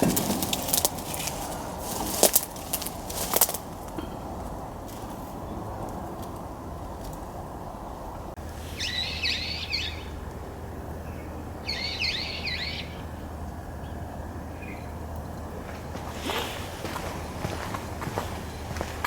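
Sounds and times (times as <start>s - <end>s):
songbird rapid high chirps: 7.8s - 19.0s.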